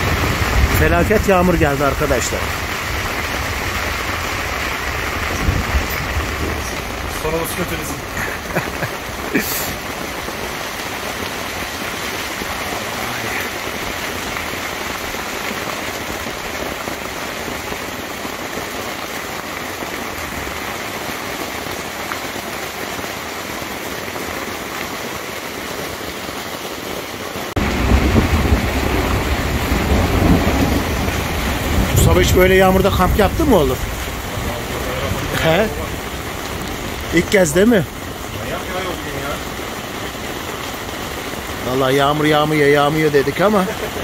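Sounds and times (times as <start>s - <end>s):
deep rumble of thunder: 0.0s - 8.3s, 27.6s - 37.1s
heavy rain on tent fabric: 0.0s - 44.0s.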